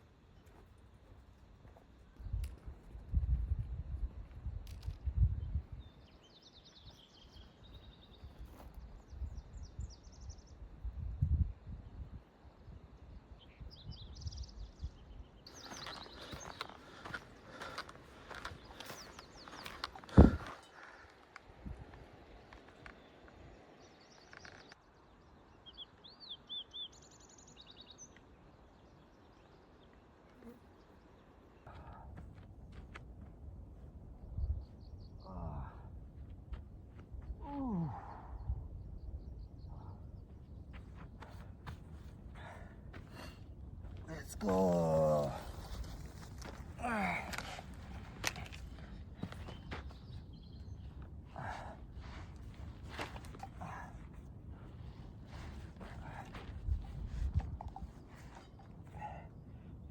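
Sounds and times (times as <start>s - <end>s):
small bird singing: 5.1s - 12.0s, 12.6s - 17.5s, 18.2s - 20.8s, 22.9s - 31.7s, 44.0s - 53.5s.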